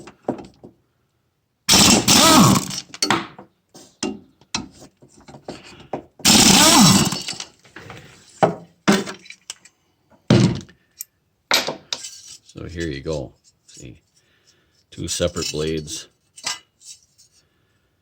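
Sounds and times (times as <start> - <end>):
impact wrench bursts: 1.7 - 3.0, 6.2 - 7.5.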